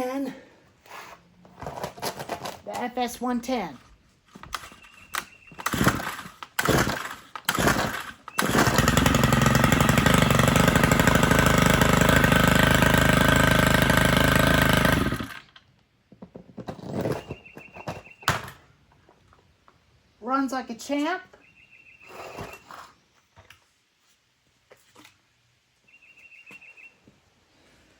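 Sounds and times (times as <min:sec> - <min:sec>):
starter cord pulls: 0:04.5 - 0:15.7
string trimmer running: 0:05.6 - 0:15.6.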